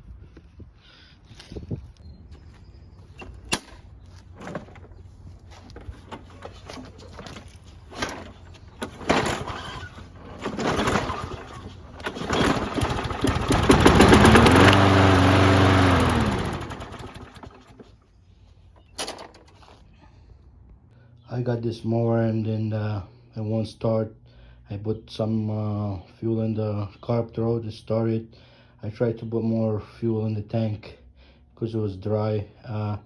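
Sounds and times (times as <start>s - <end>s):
lawn mower engine cranking: 3.0s - 17.9s, 18.8s - 19.8s
starter clicks: 5.6s - 17.8s.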